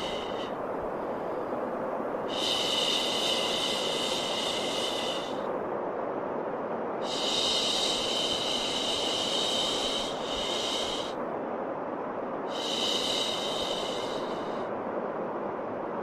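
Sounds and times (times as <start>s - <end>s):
white noise hiss: 0.0s - 16.0s.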